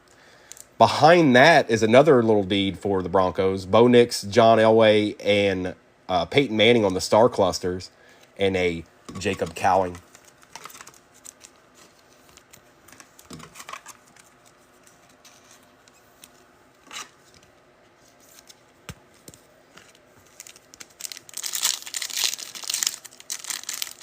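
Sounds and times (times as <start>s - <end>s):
trading cards clicking and rustling: 9.1s - 24.0s
foil wrapper tearing and crinkling: 20.3s - 24.0s.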